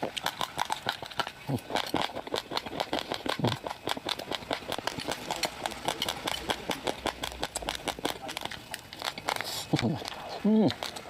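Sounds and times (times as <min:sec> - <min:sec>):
chewing crunchy rice grains: 0:00.0 - 0:11.0.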